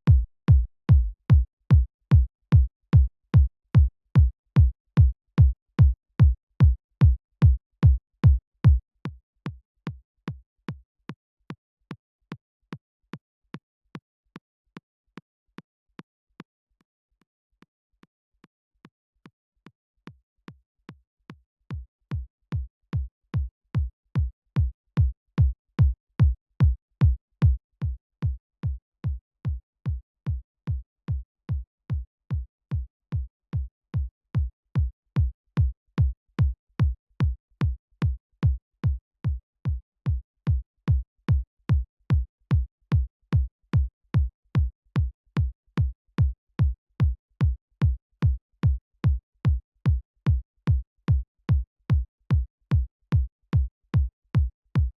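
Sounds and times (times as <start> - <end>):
electronic kick drum: 0.0 - 8.8, 21.7 - 54.9.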